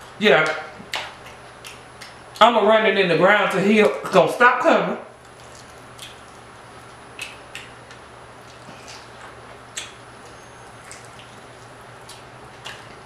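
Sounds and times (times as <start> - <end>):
steady low hum: 0.0 - 13.0
mouth clicks and smacks: 0.4 - 2.5, 5.3 - 6.4, 7.1 - 13.0.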